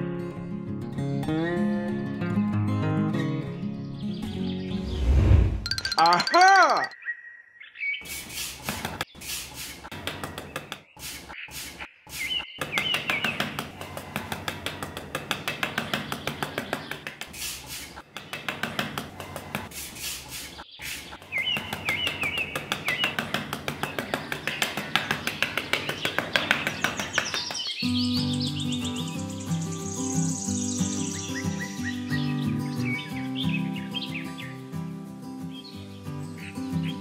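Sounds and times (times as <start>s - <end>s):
bird chirps: 5.7s - 8.4s, 10.4s - 13.6s, 20.4s - 34.6s.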